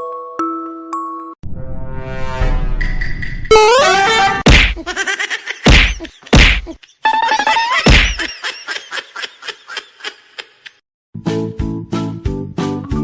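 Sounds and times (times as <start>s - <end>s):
music: 0.0s - 4.4s, 11.2s - 13.0s
loud whacks: 4.4s - 4.9s, 5.6s - 6.7s, 7.8s - 8.3s
quickly repeating knocks: 4.4s - 4.9s, 5.6s - 6.8s, 7.8s - 8.3s.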